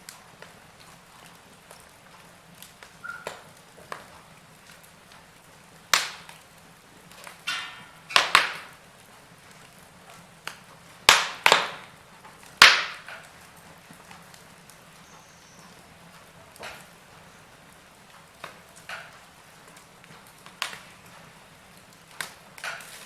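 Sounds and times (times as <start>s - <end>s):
fire snapping loudly: 0.0s - 23.0s
steady hiss: 0.0s - 23.0s
wood fire crackling: 0.0s - 23.0s.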